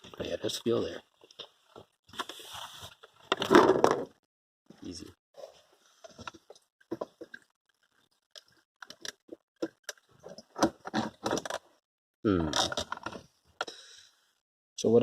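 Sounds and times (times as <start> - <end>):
plastic and metal parts clicking and scraping: 6.0 - 11.8, 12.5 - 13.7.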